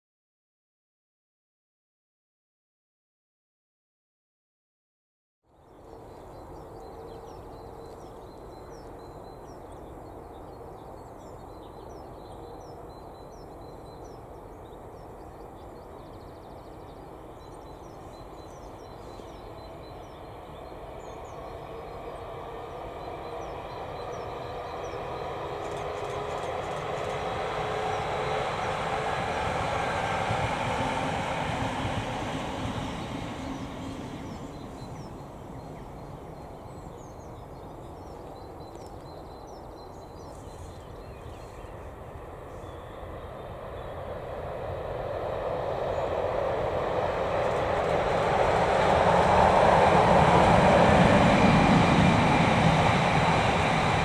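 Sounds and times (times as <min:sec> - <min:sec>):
birds chirping faintly: 0:05.6 - 0:44.7
train wheels on rails passing: 0:05.7 - 0:54.0.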